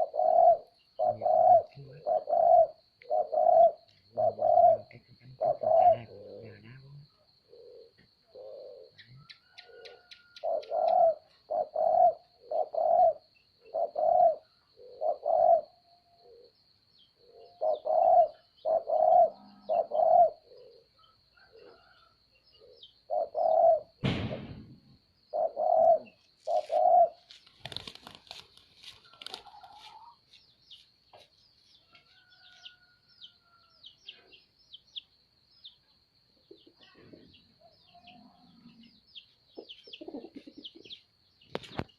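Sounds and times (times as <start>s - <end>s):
dove cooing: 0.0s - 16.6s, 17.2s - 24.0s, 25.3s - 28.4s, 29.0s - 30.2s, 39.6s - 41.0s
small birds chirping: 0.0s - 24.1s, 25.1s - 41.9s
sharp knock: 24.0s - 25.0s.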